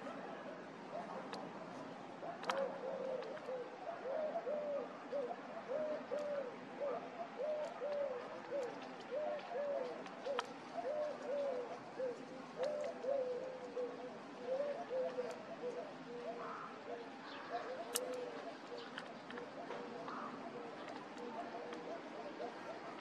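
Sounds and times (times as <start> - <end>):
bird cooing: 0.0 - 23.0.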